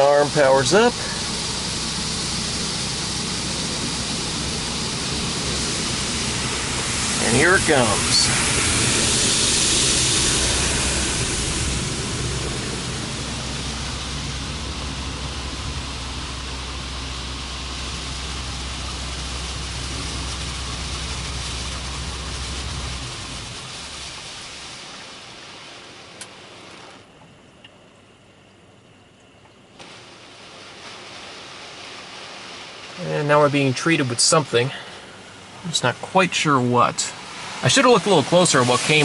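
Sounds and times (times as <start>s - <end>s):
high-pressure water spray hissing: 0.0s - 27.1s, 29.8s - 39.0s
low pump hum: 0.0s - 39.0s
small click: 26.2s - 26.4s.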